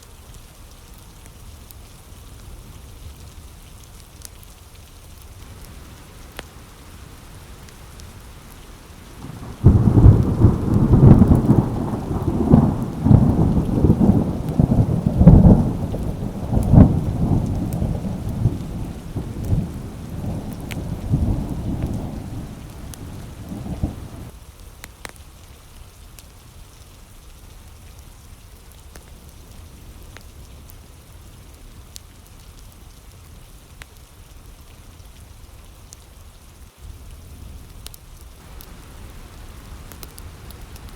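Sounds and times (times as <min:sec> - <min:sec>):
steady rain: 0:00.0 - 0:40.9
thunder rumbling: 0:05.4 - 0:24.3.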